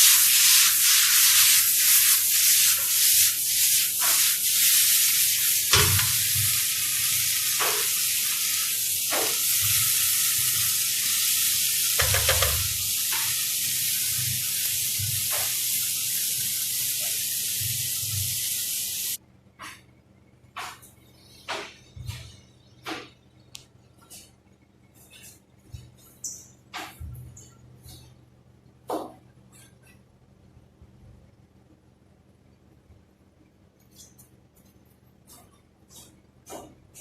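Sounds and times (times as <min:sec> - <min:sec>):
food sizzling in a frying pan: 0:00.0 - 0:19.2
spatula scraping a pan: 0:00.1 - 0:14.1.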